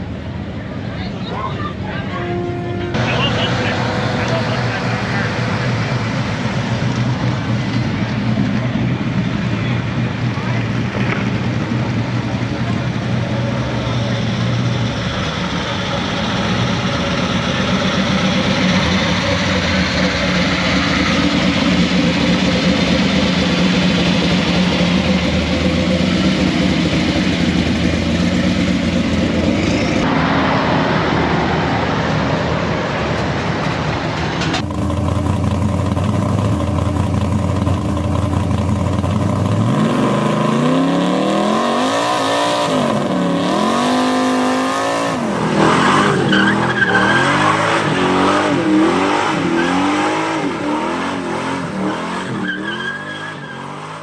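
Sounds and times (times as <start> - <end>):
car engines idling: 0.0 - 41.6
car engine revving: 2.9 - 54.0.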